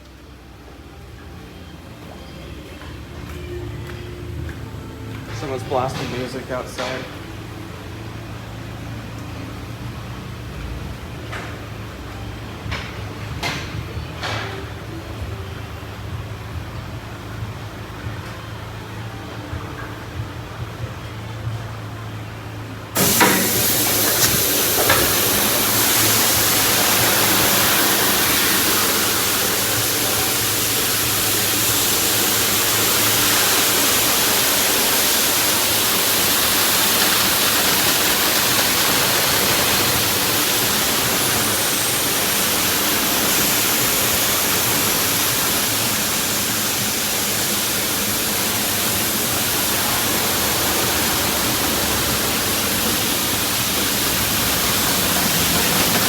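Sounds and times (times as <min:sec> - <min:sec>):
high-pressure water spraying: 0:23.0 - 0:56.0.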